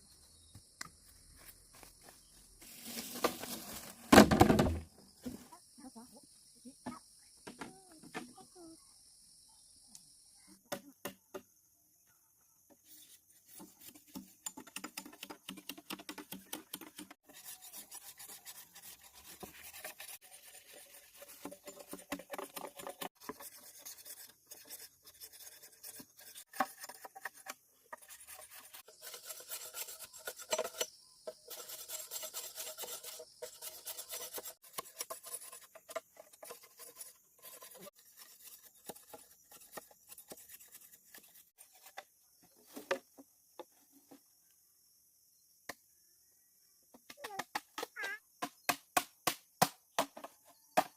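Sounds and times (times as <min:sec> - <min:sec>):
rapid scraping strokes: 0:16.8 - 0:42.0.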